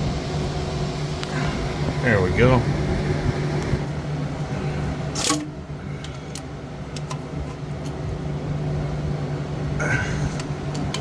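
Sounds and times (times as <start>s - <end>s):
steady low hum: 0.0s - 11.0s
loud clatter of tools: 5.1s - 5.5s.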